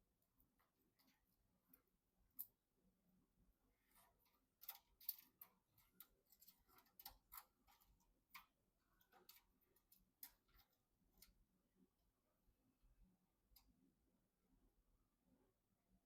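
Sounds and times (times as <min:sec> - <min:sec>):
small parts clicking and tapping: 0:03.8 - 0:11.4.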